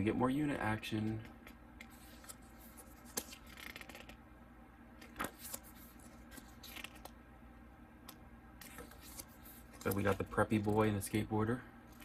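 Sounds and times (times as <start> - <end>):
photo cards flipping with clicks: 1.0 - 4.2, 5.0 - 7.2, 8.1 - 10.8
paper rustling: 1.8 - 4.2, 5.0 - 7.1, 8.6 - 11.0.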